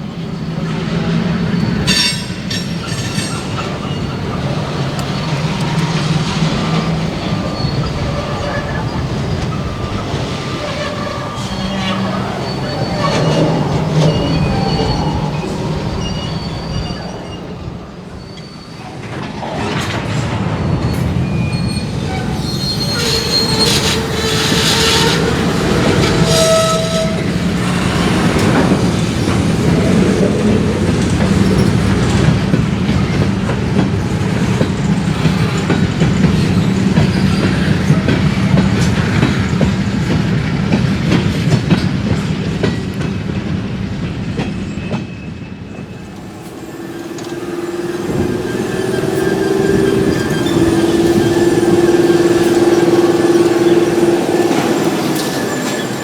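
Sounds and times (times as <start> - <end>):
wheel flanges squealing: 0.0 - 19.6, 20.9 - 43.0, 44.2 - 56.0
diesel locomotive engine: 0.0 - 56.0
wheels clicking over track: 45.7 - 56.0.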